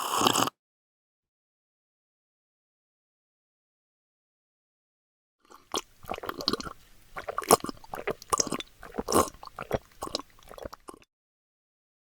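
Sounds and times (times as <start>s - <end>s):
person chewing crunchy food: 0.0s - 0.5s, 5.5s - 11.1s.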